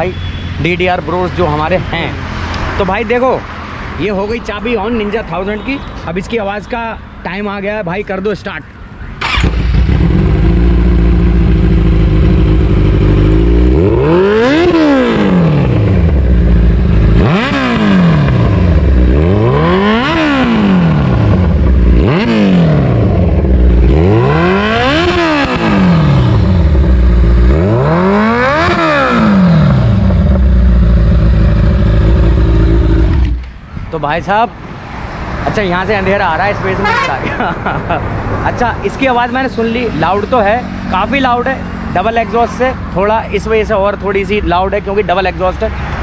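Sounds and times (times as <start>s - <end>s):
motorcycle engine revving: 9.2s - 33.5s, 39.4s - 44.2s.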